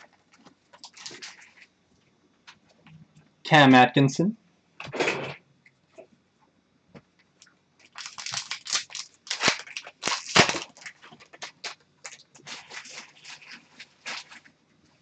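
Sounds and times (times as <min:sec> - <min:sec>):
wrapper crinkling and rustling: 0:00.2 - 0:01.7, 0:07.8 - 0:14.6.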